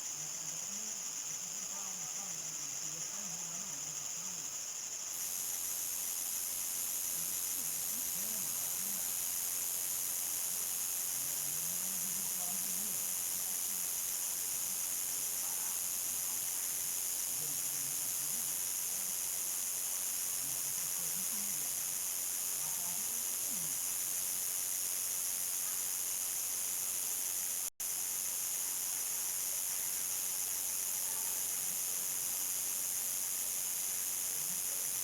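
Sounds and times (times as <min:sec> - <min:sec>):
crickets trilling: 0:00.0 - 0:35.0.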